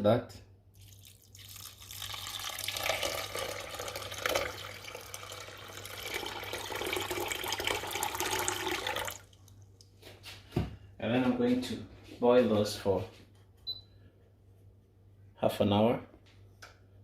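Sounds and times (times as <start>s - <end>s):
water pouring into a pot: 0.8s - 9.4s.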